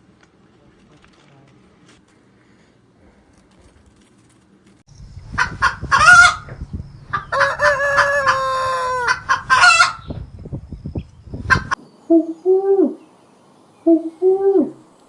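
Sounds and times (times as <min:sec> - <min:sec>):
chicken clucking: 0:05.3 - 0:10.2, 0:11.4 - 0:11.8
rooster crowing: 0:05.5 - 0:10.1.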